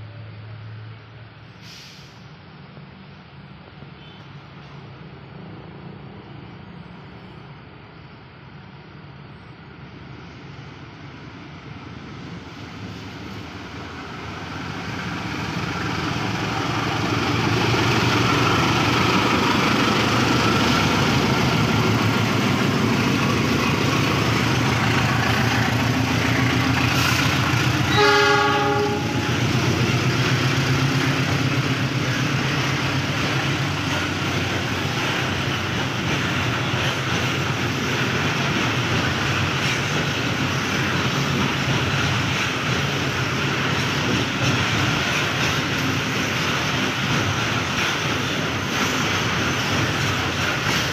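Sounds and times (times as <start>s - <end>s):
train wheels clattering on rails: 13.7s - 50.9s
train horn: 27.9s - 29.3s.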